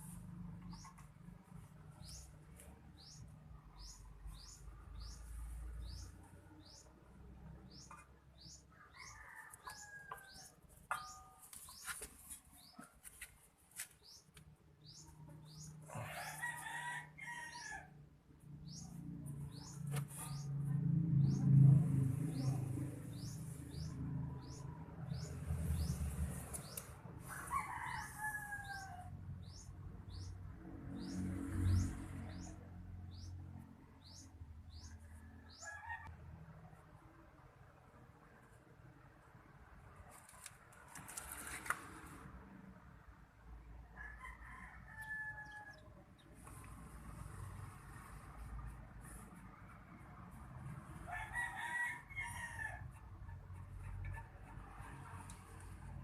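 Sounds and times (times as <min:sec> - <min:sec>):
bird chirping: 0:03.0 - 0:07.0, 0:13.9 - 0:16.2, 0:18.6 - 0:20.6
sharp metallic clinks: 0:10.9 - 0:11.8.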